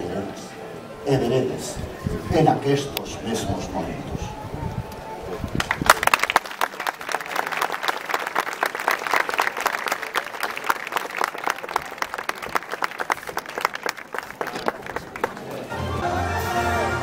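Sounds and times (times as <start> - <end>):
audience applauding: 5.5 - 17.0.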